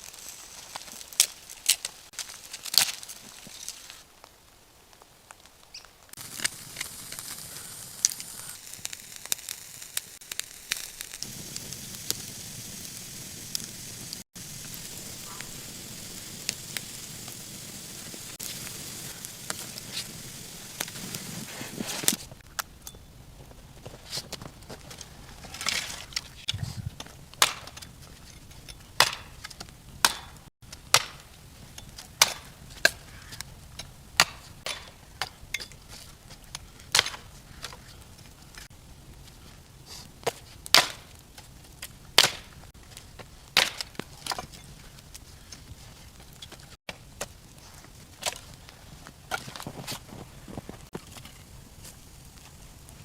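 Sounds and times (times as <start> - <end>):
steady hiss: 0.0 - 22.5
wood being chopped: 26.5 - 27.9, 29.0 - 31.3, 32.1 - 33.0, 33.8 - 35.4, 36.9 - 37.3, 40.2 - 41.1, 42.2 - 42.5, 43.6 - 44.5.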